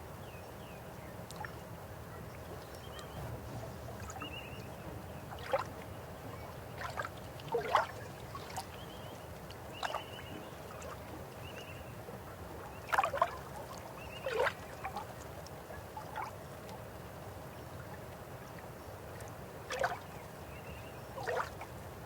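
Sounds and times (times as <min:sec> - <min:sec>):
water gurgling and splashing: 0:06.8 - 0:08.6.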